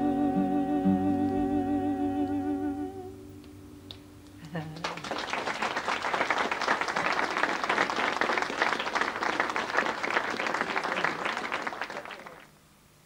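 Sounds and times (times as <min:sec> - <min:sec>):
audience applauding: 0:04.5 - 0:12.5.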